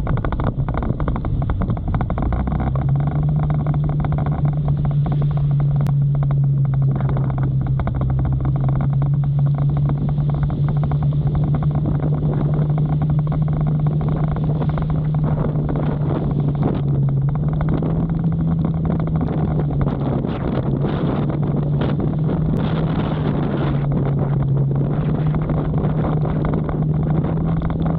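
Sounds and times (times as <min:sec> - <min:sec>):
motorcycle engine cruising: 0:00.0 - 0:27.9
wind and rain rushing: 0:00.0 - 0:27.9.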